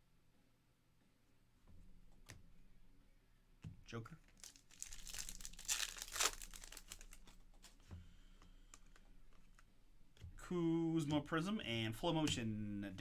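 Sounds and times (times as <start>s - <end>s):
cards clicking: 4.2s - 10.3s
foil wrapper tearing and crinkling: 4.3s - 7.8s.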